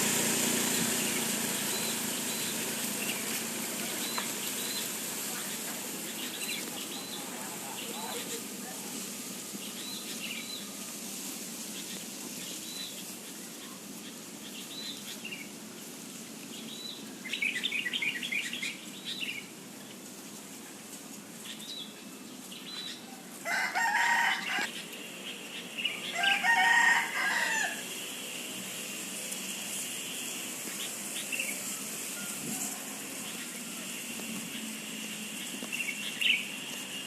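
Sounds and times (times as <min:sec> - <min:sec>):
birds chirping: 0:00.0 - 0:11.0, 0:11.6 - 0:15.6, 0:16.4 - 0:37.0
louder bird calls: 0:00.2 - 0:08.5.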